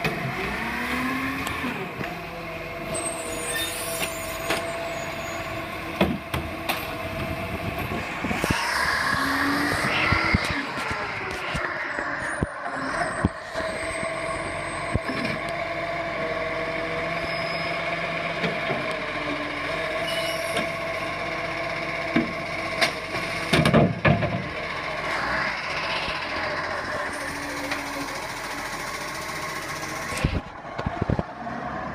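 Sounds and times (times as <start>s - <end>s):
heavy truck engine running: 0.0s - 31.9s
loud noisy bursts: 24.8s - 28.8s.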